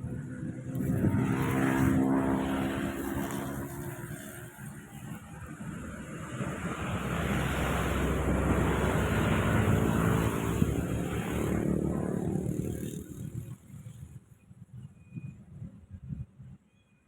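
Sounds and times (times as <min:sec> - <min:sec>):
wind gust rushing through grass: 0:05.5 - 0:13.4.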